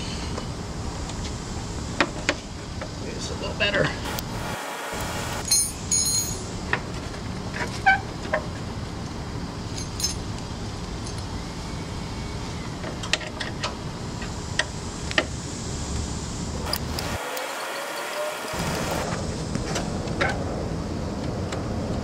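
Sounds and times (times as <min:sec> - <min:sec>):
metallic clinks of hand tools: 0:05.4 - 0:06.4.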